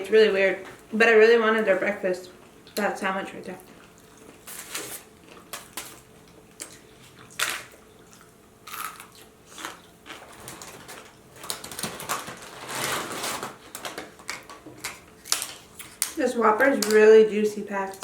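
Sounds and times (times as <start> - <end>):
person chewing: 3.7 - 11.0.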